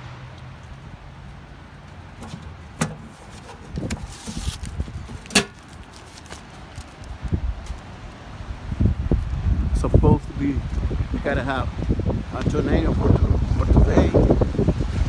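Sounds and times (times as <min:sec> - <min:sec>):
gusty storm wind: 0:02.2 - 0:05.8, 0:07.0 - 0:15.0.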